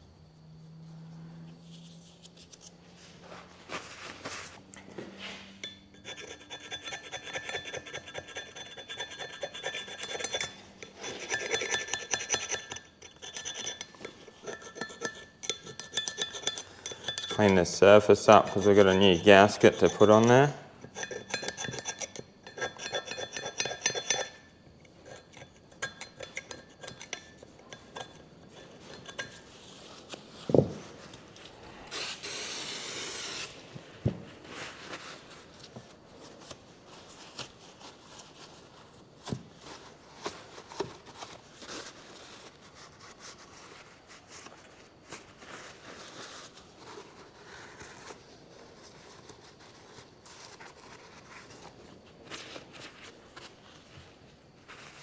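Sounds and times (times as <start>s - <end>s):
metal scraping on wheel hub: 5.2s - 33.4s
brief hiss: 31.8s - 33.6s.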